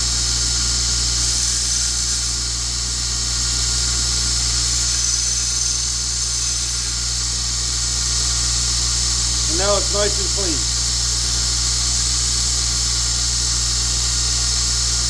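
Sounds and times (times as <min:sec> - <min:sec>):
steel grinding hiss: 0:03.4 - 0:13.6.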